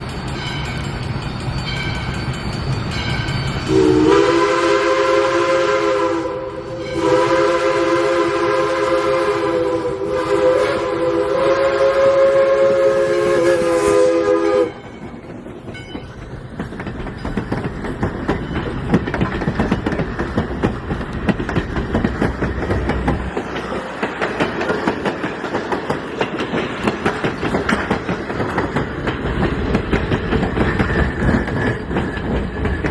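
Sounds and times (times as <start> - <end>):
steam locomotive chime whistle: 0.0 - 16.2
steam locomotive running: 0.0 - 32.9.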